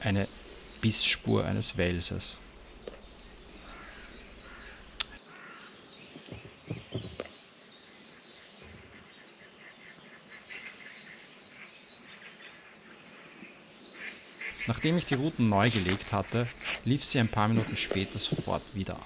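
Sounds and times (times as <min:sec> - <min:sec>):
distant birds calling: 0:00.0 - 0:19.0
dull thumps: 0:06.2 - 0:07.3.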